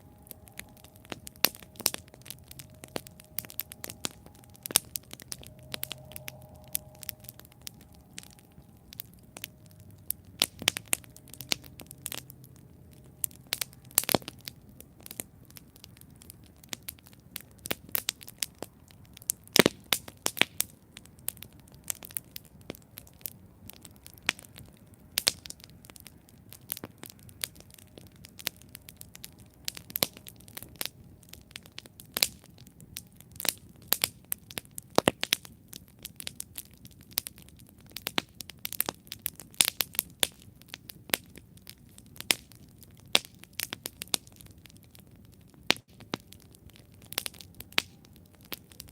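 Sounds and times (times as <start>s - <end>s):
low hiss: 0.0s - 37.7s
campfire crackling and popping: 0.0s - 48.9s.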